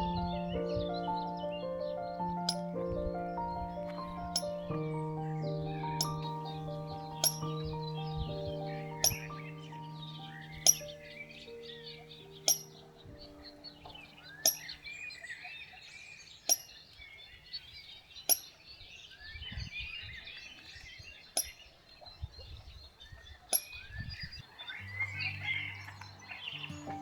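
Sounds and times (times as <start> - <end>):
quiet background music: 0.0 - 14.9, 24.6 - 27.0
birds singing and chirping: 0.0 - 27.0
sharp click: 4.4 - 4.6, 6.0 - 6.3, 7.2 - 7.6, 9.0 - 9.4, 10.6 - 11.0, 12.5 - 12.8.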